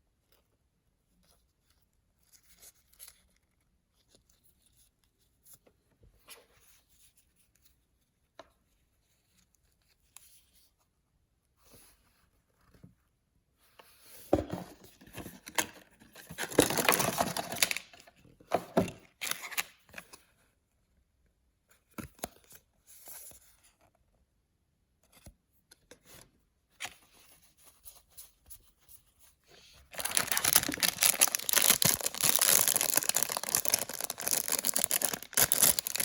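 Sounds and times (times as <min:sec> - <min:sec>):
packaging tearing and crinkling: 0:16.3 - 0:17.9, 0:29.9 - 0:36.0.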